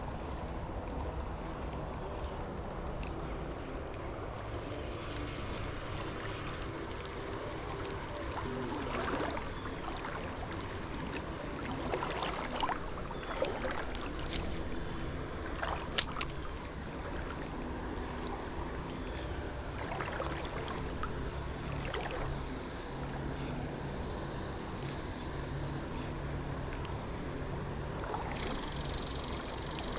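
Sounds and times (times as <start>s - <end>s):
water lapping against hull: 0.0s - 29.9s.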